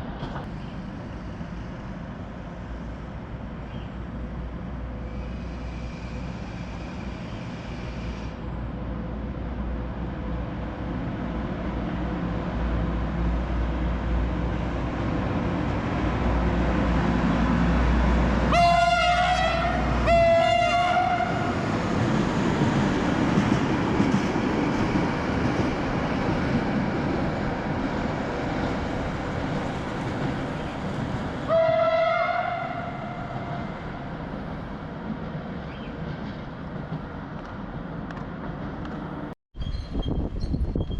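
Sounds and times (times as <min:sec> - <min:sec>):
train rumbling on tracks: 0:00.0 - 0:40.9
train horn blasts: 0:18.5 - 0:21.5, 0:31.5 - 0:33.7.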